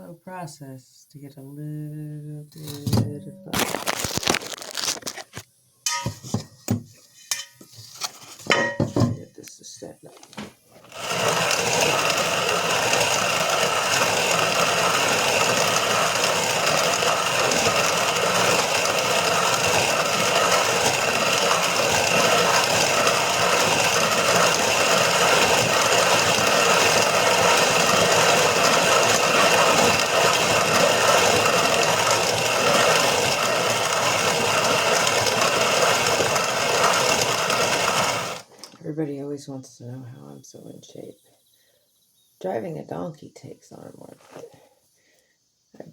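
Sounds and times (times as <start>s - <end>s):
grain mill grinding: 2.6s - 6.4s, 10.2s - 38.8s.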